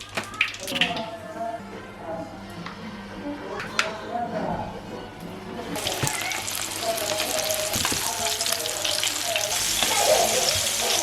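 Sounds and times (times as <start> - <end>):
food sizzling in hot oil: 5.8 - 11.0.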